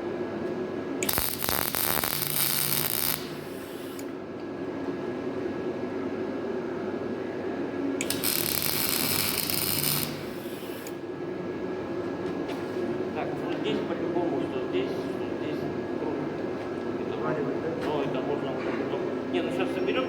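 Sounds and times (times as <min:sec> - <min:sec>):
welder arc crackling: 0:01.0 - 0:04.1, 0:08.0 - 0:11.0.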